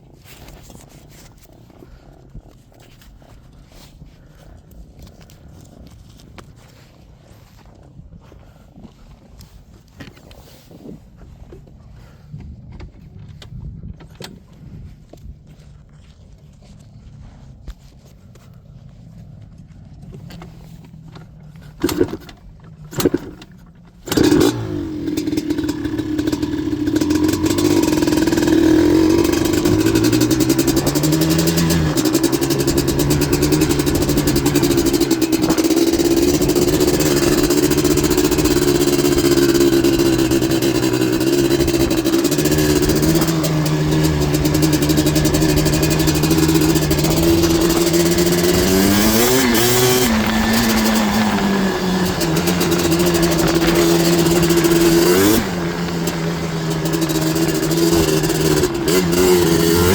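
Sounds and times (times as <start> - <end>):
two-stroke engine running hard: 21.8 - 59.9.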